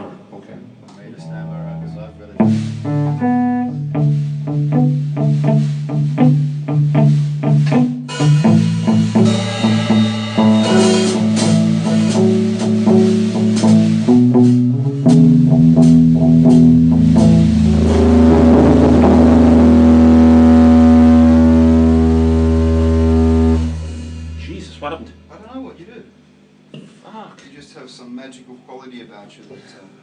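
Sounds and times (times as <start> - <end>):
microphone feedback drone: 1.2 - 3.7, 17.0 - 25.4
slow blues guitar riff: 1.2 - 25.4.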